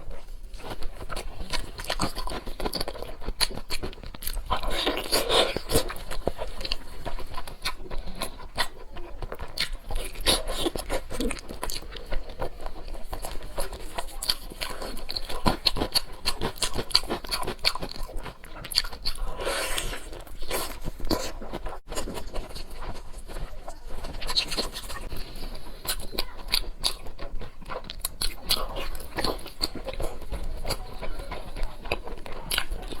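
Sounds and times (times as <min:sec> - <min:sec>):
person chewing and crunching: 0:00.0 - 0:33.0
slurps: 0:19.0 - 0:23.6.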